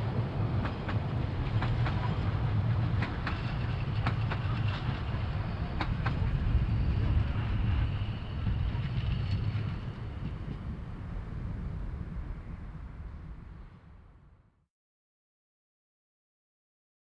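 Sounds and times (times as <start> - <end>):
steam train rumbling by: 0.0 - 13.4.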